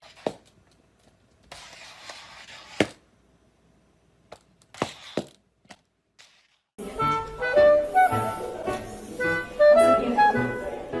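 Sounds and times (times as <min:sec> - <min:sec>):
music: 0:06.8 - 0:11.0.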